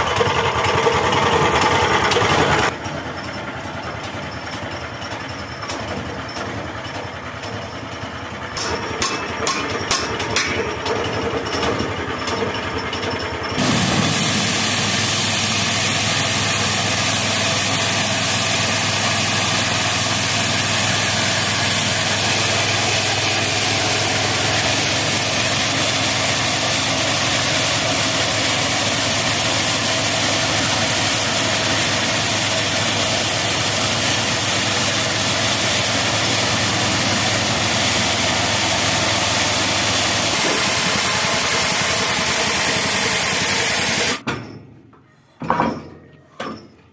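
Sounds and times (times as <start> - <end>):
saw running at full power: 0.0 - 2.8, 13.6 - 44.2
sawmill engine running: 0.0 - 44.2.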